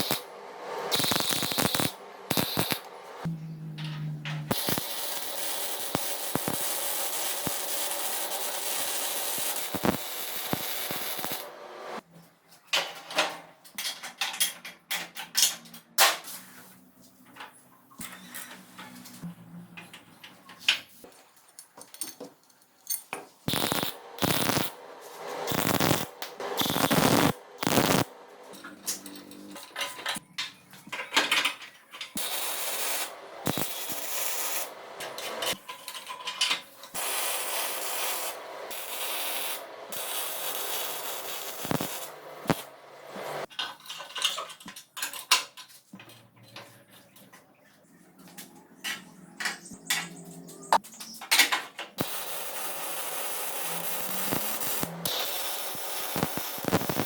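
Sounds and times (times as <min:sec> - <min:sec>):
hiss-like rush of tool: 0:23.5 - 0:28.2, 0:37.0 - 0:43.5.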